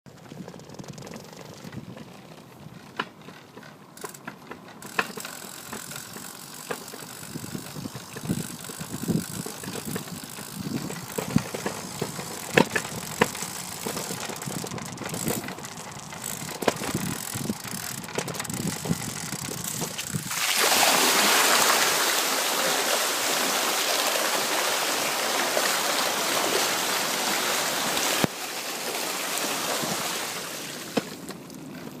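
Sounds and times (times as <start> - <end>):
rushing floodwater: 20.3 - 31.2.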